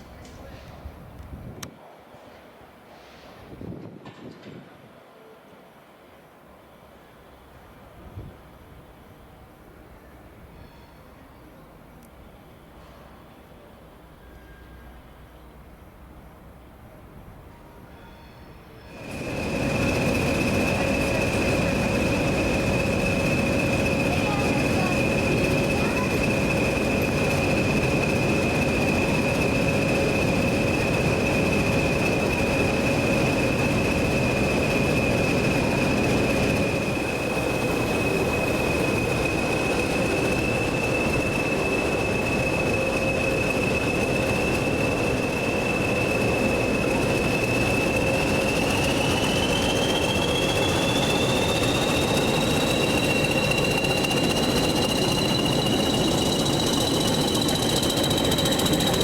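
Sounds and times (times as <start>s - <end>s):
train rumbling: 0.0s - 59.0s
high-pitched squeal: 18.9s - 59.0s
rising high tone: 19.0s - 59.0s.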